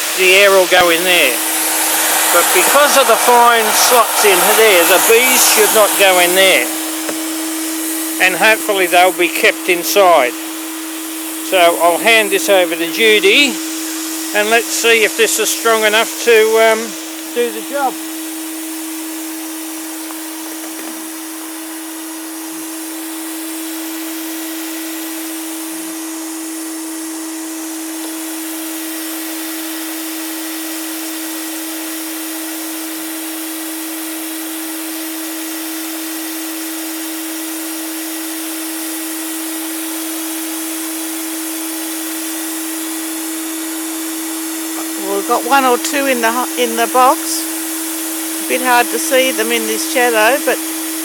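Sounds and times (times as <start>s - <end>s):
rushing air: 0.0s - 8.9s
vacuum motor hum: 0.0s - 51.0s.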